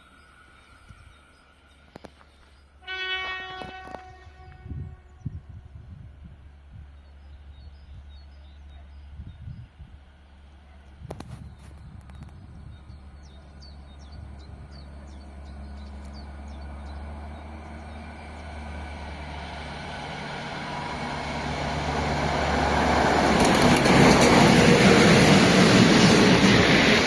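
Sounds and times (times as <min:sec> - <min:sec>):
train approaching on rails: 0:00.0 - 0:27.0.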